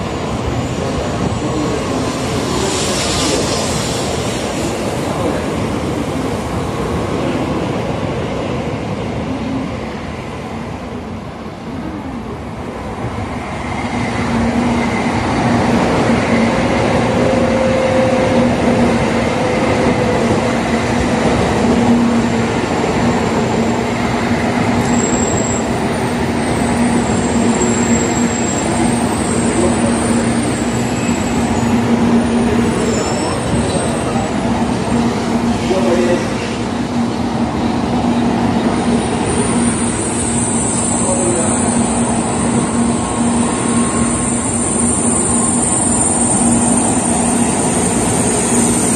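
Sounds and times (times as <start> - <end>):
train wheels rolling on rails: 0.0 - 48.9
faint high squeals: 32.7 - 34.3.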